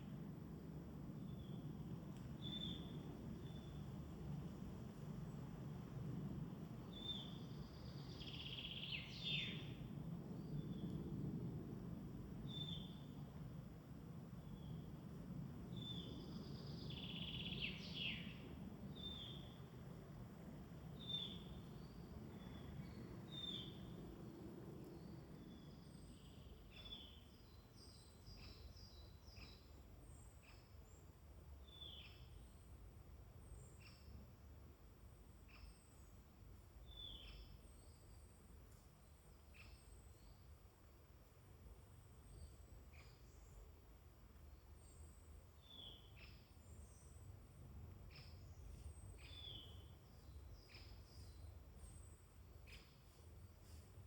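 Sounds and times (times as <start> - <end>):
low background rumble: 0.0 - 31.8
songbirds chirping and whistling: 7.0 - 9.8
birdsong: 15.8 - 19.6, 21.0 - 32.6, 48.0 - 54.0.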